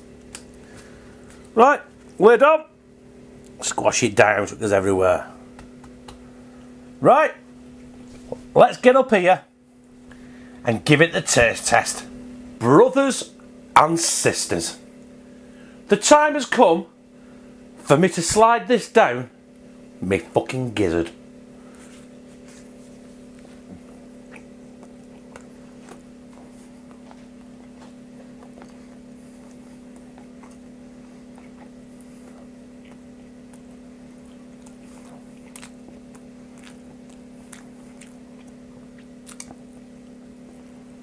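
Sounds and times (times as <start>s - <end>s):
man chewing: 0.0s - 2.2s, 21.5s - 41.0s
low hum: 19.2s - 41.0s.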